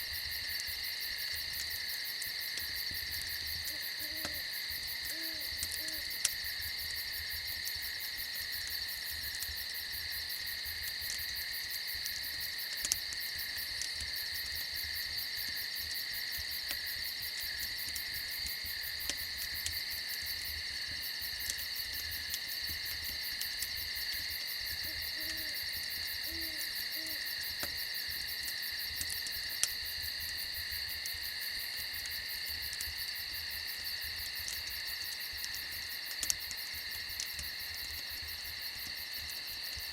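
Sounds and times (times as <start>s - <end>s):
crickets trilling: 0.0s - 39.9s
fire crackling pops: 0.0s - 39.9s
soft owl hoots: 3.6s - 6.1s, 24.8s - 25.6s, 26.2s - 27.3s.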